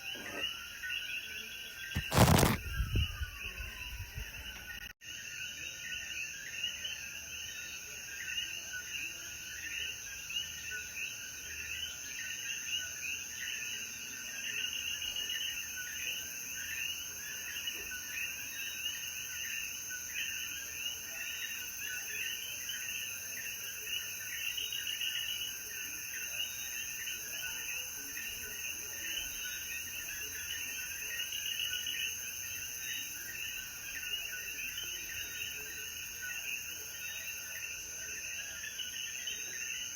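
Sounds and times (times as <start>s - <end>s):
frogs calling: 0.0s - 4.8s.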